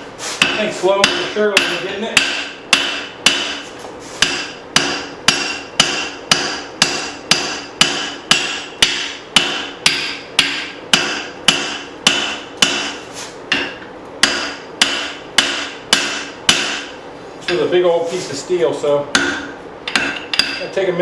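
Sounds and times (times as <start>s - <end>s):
hammer blows on steel anvil: 19.1s - 20.8s.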